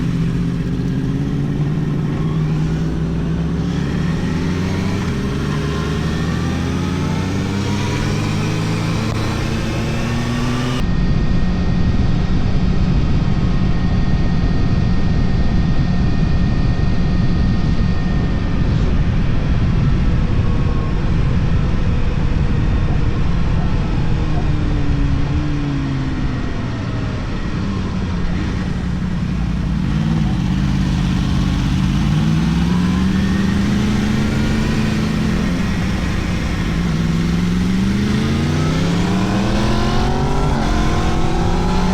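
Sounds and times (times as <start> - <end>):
motorcycle engine revving: 0.0 - 10.8, 22.0 - 41.9.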